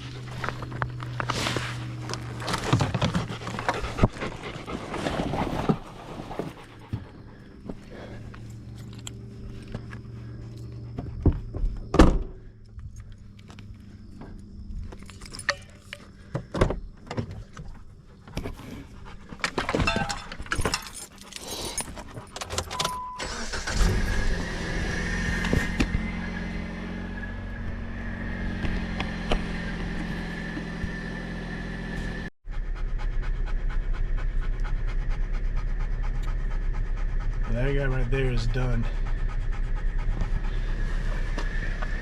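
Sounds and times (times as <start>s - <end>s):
car engine running: 0.0s - 4.9s, 23.2s - 42.0s
keys jangling: 14.9s - 16.1s, 19.7s - 23.0s.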